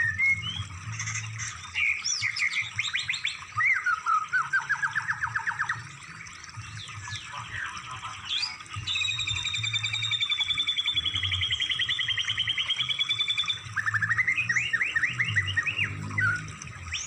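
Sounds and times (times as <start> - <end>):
low hum: 0.0 - 1.8
songbird trilling: 8.4 - 16.3.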